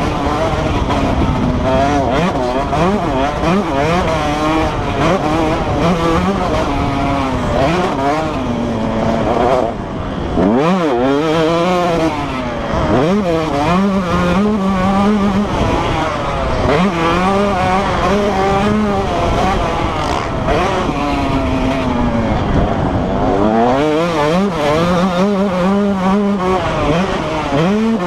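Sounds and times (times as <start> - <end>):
motocross bike engines revving: 0.0 - 28.0.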